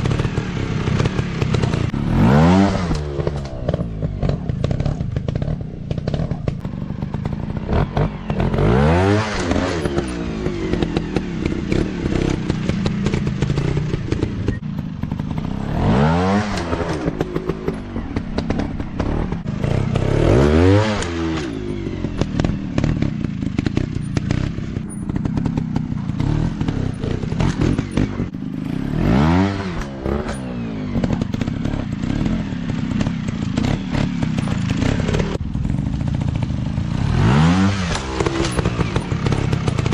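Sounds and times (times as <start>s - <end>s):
dirt bike engines revving: 0.0s - 39.9s
knocks and clatter: 37.8s - 39.9s.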